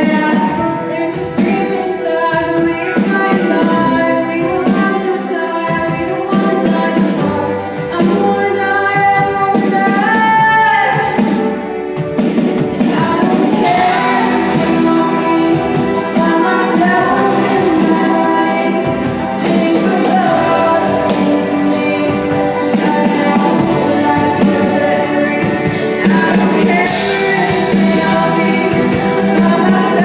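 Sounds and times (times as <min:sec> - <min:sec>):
musical accompaniment: 0:00.0 - 0:30.0
woman singing pop ballad: 0:00.0 - 0:30.0.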